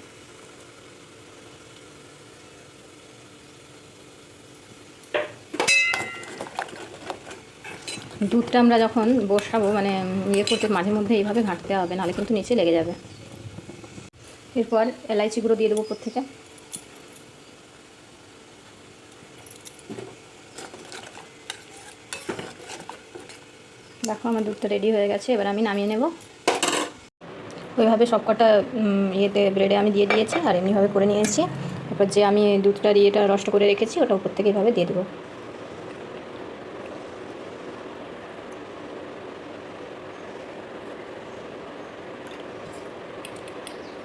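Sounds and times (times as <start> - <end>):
spoon clinking and scraping pot: 5.7 - 8.2, 9.4 - 10.9
spoon stirring in a pan: 5.9 - 12.3, 20.5 - 23.5.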